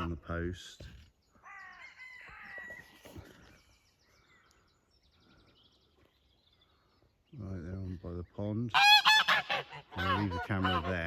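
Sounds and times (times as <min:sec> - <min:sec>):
geese calling faintly: 0:08.6 - 0:11.0.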